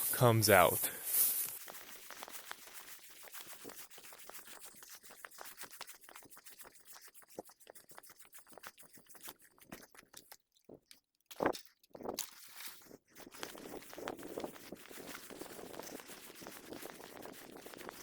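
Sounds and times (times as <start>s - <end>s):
faint scratchy crackling: 0.0s - 5.8s.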